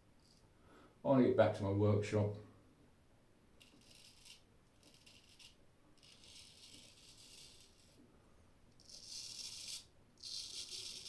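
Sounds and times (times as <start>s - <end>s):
straight razor scraping stubble: 3.6s - 8.0s.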